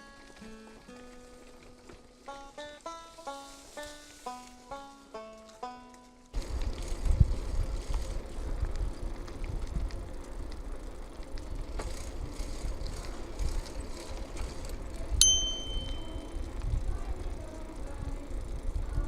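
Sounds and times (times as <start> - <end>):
bicycle tyre rumble: 0.0 - 19.0
wind: 0.0 - 19.0
bicycle bell ding: 15.2 - 16.4.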